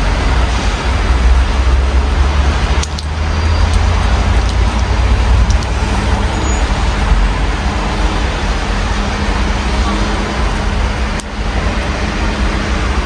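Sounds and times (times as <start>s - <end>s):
low rumble of road traffic: 0.0s - 13.0s
rain hissing: 0.0s - 13.0s.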